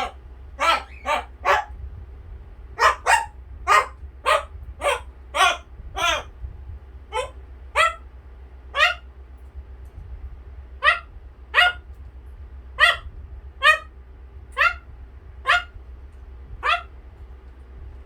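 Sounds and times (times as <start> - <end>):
parrot imitating dog bark: 0.0 - 1.8, 2.8 - 6.3, 7.1 - 8.0, 8.7 - 9.1, 10.8 - 11.8, 12.8 - 13.9, 14.6 - 15.8, 16.6 - 16.9.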